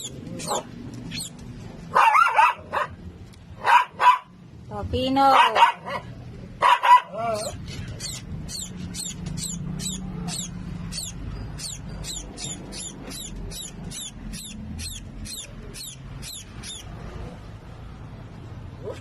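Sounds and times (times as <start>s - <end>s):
nestling bird cheeping: 0.0s - 1.4s, 7.4s - 17.0s.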